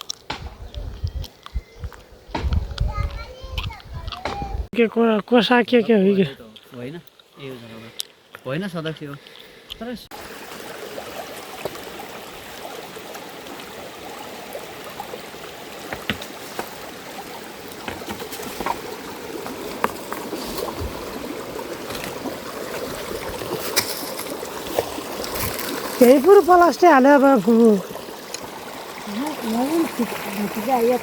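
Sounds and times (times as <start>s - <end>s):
water rushing: 9.8s - 31.0s.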